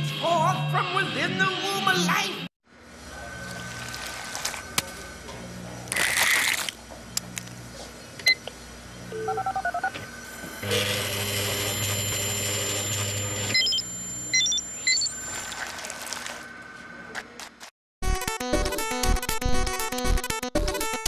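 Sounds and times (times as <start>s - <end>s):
fax machine electronic buzz: 9.0s - 16.4s
keypad beeps: 13.5s - 15.2s
short high beeps: 13.6s - 15.2s
paper rustling: 15.4s - 16.5s.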